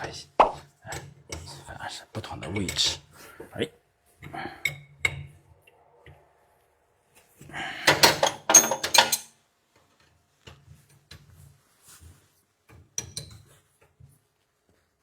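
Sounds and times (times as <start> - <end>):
metal parts rattling and clinking: 7.9 - 9.3.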